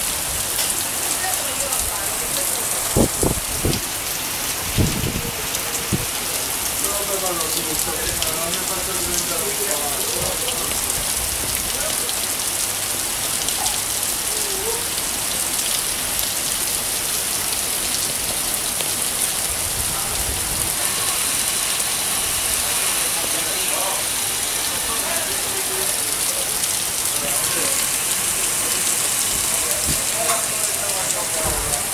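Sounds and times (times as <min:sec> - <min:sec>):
steady rain falling: 0:00.0 - 0:31.9
faint voices: 0:00.7 - 0:12.4, 0:19.3 - 0:31.9.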